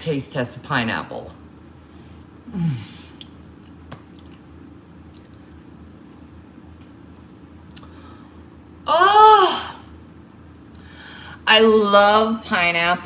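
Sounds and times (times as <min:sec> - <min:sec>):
soft mouth clicks: 0:03.2 - 0:04.4, 0:07.7 - 0:07.9
wet chewing squishes: 0:03.2 - 0:05.6.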